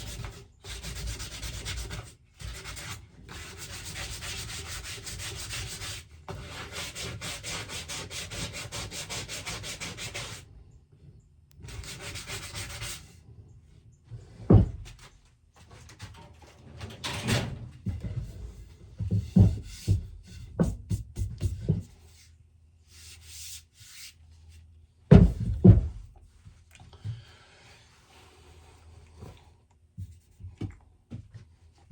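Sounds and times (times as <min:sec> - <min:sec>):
sharp knocks on wood: 0:25.1 - 0:26.0.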